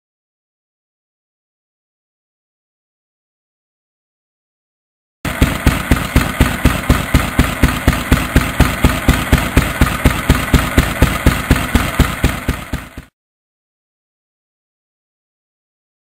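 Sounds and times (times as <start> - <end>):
stationary engine running: 5.3 - 13.1.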